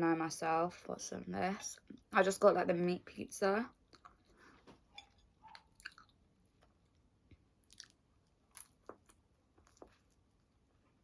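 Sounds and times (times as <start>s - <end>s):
person chewing pizza: 3.8s - 11.0s.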